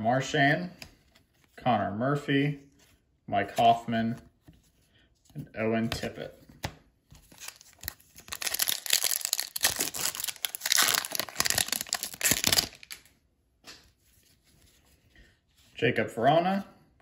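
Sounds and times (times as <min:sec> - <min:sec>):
wrapper crinkling and tearing: 0:07.3 - 0:13.1.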